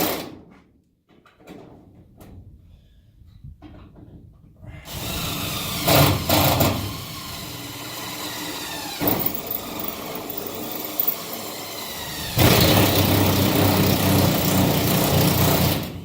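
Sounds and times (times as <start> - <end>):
power drill boring through metal: 4.9 - 16.0.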